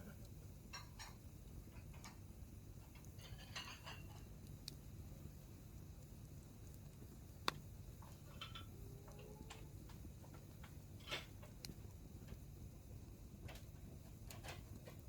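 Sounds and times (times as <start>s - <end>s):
campfire crackling: 0.0s - 15.0s
low rumble of fire: 0.0s - 15.0s.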